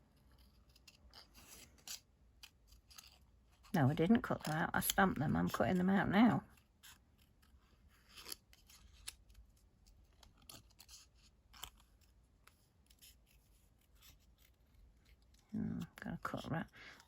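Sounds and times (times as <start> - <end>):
scissors snipping paper: 4.1 - 5.8.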